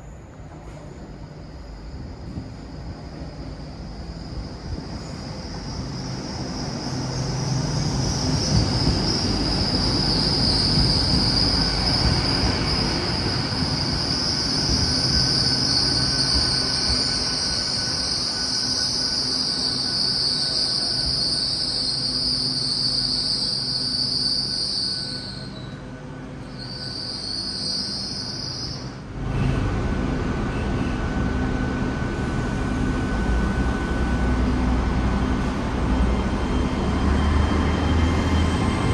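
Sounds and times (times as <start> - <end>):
low train rumble: 0.0 - 38.9
train wheels squealing: 0.0 - 38.9.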